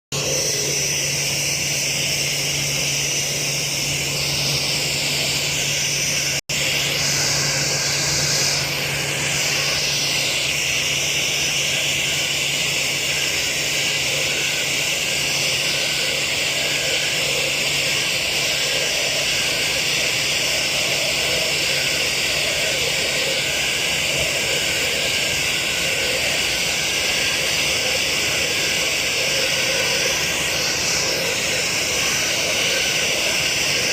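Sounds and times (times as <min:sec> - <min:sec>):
jet engines rushing: 0:00.1 - 0:33.9
low hum: 0:00.1 - 0:33.9.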